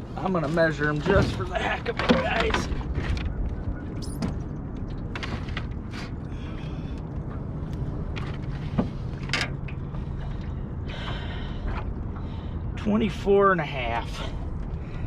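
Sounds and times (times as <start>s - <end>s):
steady low hum: 3.7s - 15.0s.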